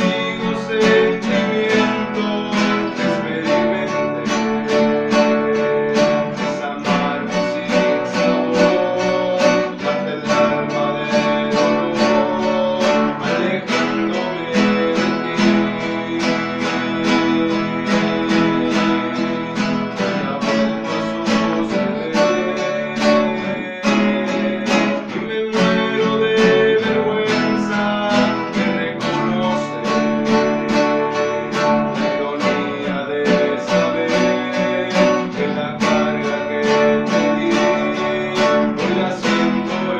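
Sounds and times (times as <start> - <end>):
acoustic guitars strumming: 0.0 - 39.9.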